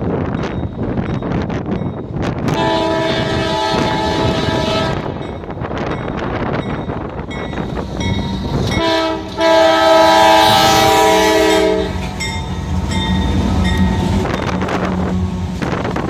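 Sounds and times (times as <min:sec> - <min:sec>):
train rumbling: 0:00.0 - 0:16.0
train air horn chord: 0:02.5 - 0:05.2, 0:08.8 - 0:12.0.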